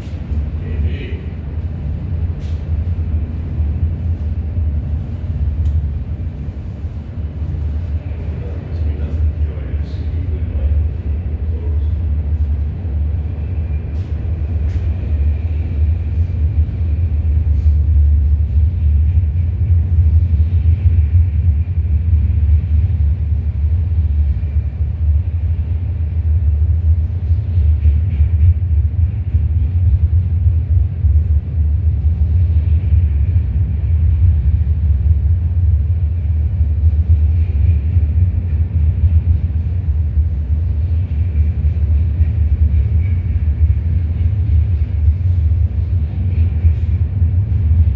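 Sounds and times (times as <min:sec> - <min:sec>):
freight train rumbling past: 0:00.0 - 0:47.9.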